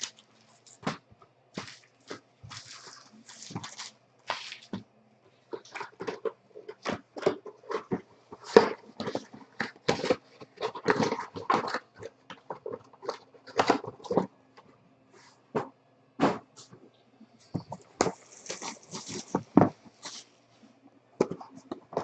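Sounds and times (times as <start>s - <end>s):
card wrappers crinkling and rustling: 0.0s - 14.3s, 17.5s - 20.3s.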